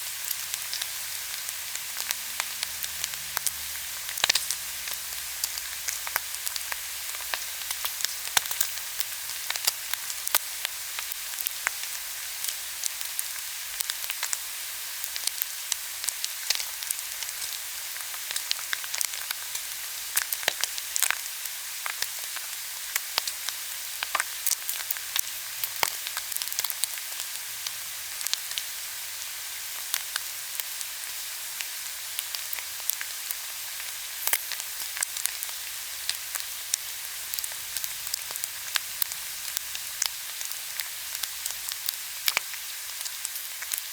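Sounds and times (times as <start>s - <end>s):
meat sizzling on a grill: 0.0s - 43.9s.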